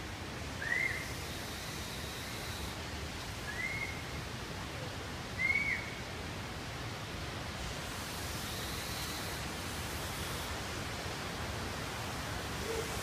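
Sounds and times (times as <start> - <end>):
bird whistling calls: 0.6 - 1.0, 3.5 - 4.0, 5.4 - 5.9
steady rushing noise: 6.4 - 13.0.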